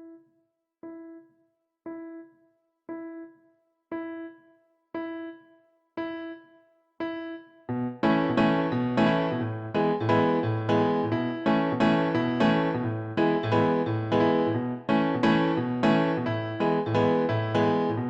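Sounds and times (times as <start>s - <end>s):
repeated piano note: 7.0s - 18.0s
piano chords with bass line: 7.7s - 18.0s.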